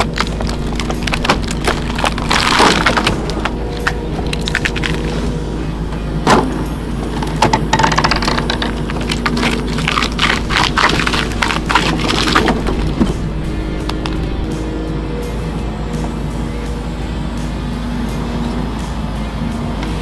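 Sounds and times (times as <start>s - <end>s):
wood cracking and splintering: 0.0s - 15.1s
heavy machine engine running: 0.0s - 20.0s.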